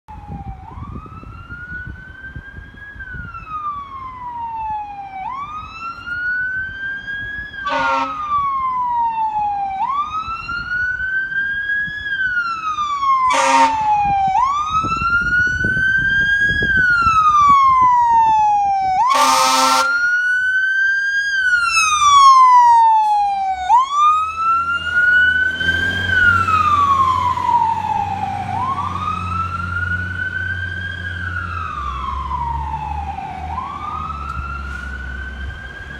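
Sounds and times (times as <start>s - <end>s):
fire engine siren wailing: 0.1s - 35.9s
truck engine rumbling: 0.2s - 35.9s
short horn blasts: 7.7s - 8.2s, 13.3s - 13.8s, 19.1s - 20.0s.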